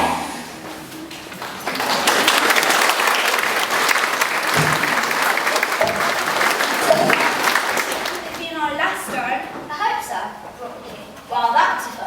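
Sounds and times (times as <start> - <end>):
audience applauding: 1.3 - 8.4.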